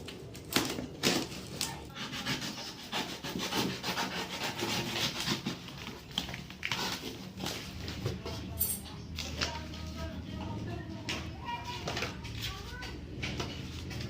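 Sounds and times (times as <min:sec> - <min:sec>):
packaging rubbing and scraping: 0:00.0 - 0:08.6.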